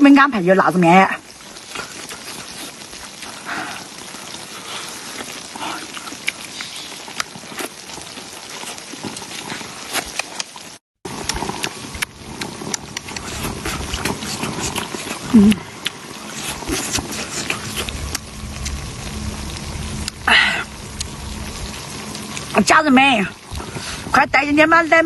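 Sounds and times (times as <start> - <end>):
tofu sizzling in oil: 0.0 - 13.9.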